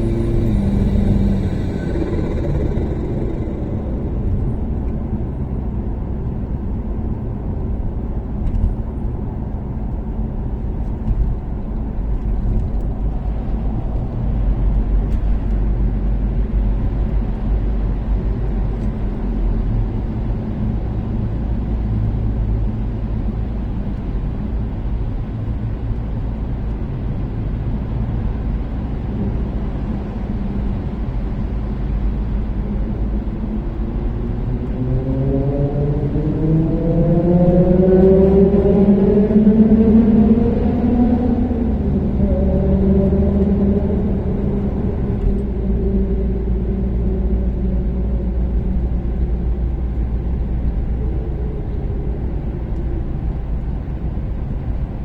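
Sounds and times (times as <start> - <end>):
tyre and road rumble: 0.0 - 6.9
engine and exhaust drone: 0.0 - 55.0.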